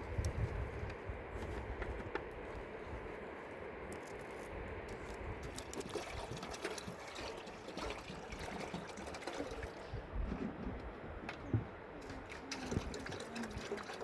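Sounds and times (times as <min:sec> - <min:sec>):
water trickling and pouring: 0:04.9 - 0:10.4, 0:12.0 - 0:14.0.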